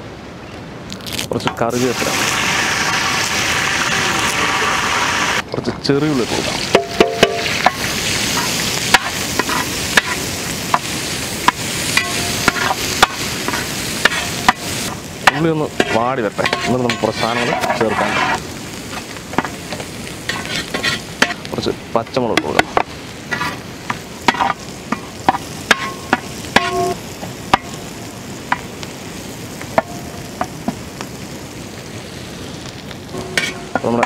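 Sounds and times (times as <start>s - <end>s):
food sizzling in oil: 0.9s - 34.0s
metal ladle scraping pan: 6.6s - 21.4s, 22.4s - 23.6s, 24.2s - 27.7s, 33.2s - 34.0s.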